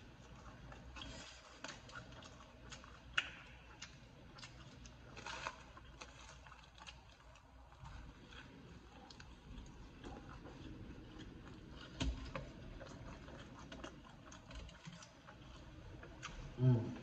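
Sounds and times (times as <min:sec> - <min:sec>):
chewing sandwich: 0:00.0 - 0:17.0
aluminium foil crinkling: 0:04.3 - 0:16.4.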